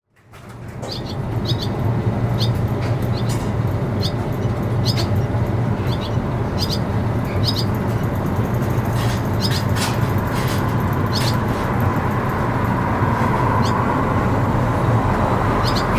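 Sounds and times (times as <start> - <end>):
low background hum: 0.1 - 15.9
swallows chirping: 0.8 - 8.4, 9.1 - 10.0, 11.0 - 11.5, 13.6 - 13.8, 15.1 - 15.9.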